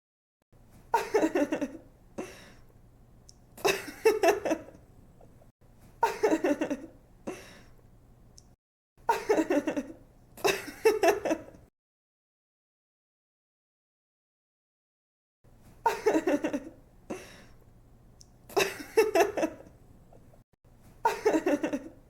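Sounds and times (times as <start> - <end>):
young woman giggling: 0.9 - 1.8, 3.6 - 4.8, 6.0 - 7.4, 9.1 - 11.6, 15.8 - 17.2, 18.5 - 19.7, 21.0 - 22.0.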